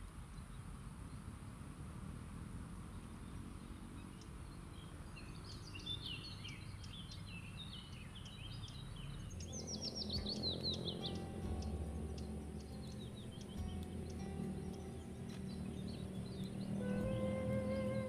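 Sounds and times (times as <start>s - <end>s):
low outdoor hum: 0.0s - 18.0s
songbird chirping: 2.9s - 18.0s
soft music: 9.3s - 18.0s.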